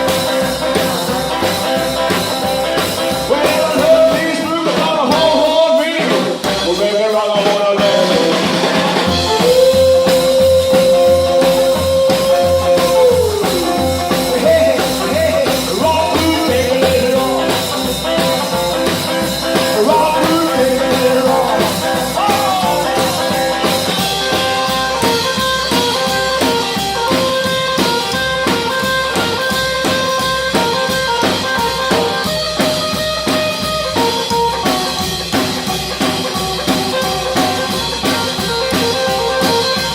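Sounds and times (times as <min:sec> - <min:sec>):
steady drum beat: 0:00.0 - 0:39.9
stepping bass line: 0:08.0 - 0:36.0.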